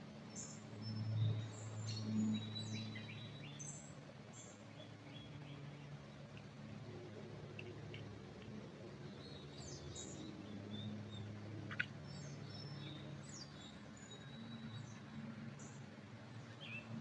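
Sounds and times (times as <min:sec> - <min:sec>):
low steady background hum: 0:00.0 - 0:17.0
small birds chirping: 0:09.1 - 0:15.0.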